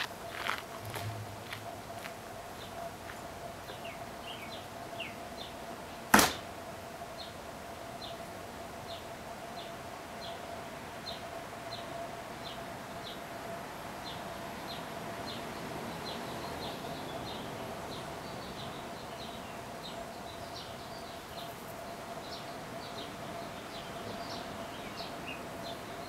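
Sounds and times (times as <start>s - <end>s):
small bird chirping: 0.0s - 2.9s
faint steady hum: 0.0s - 26.0s
sharp knock: 6.1s - 6.4s.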